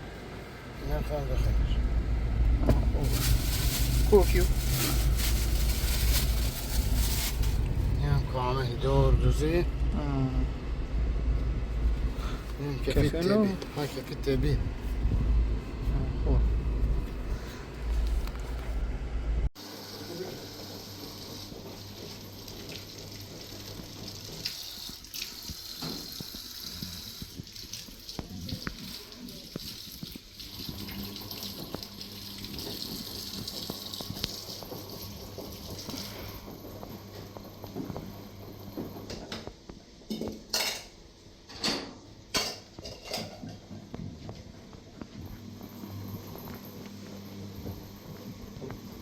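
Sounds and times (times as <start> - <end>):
water running: 2.7 - 9.6, 19.6 - 39.0
dishes and cutlery clinking: 41.5 - 43.6.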